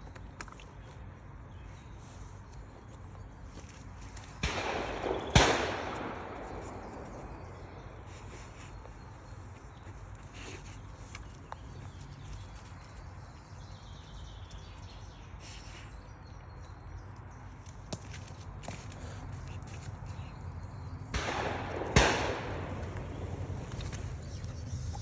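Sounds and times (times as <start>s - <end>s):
low woodland rumble: 0.0s - 25.0s
loud bang echoing: 4.4s - 7.4s, 21.1s - 23.7s.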